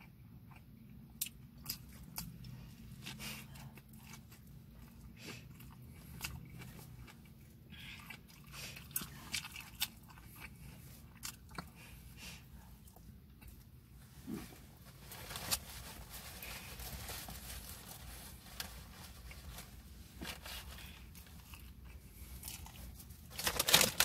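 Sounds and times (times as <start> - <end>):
chewing and biting sandwich: 0.0 - 14.6, 19.1 - 24.0.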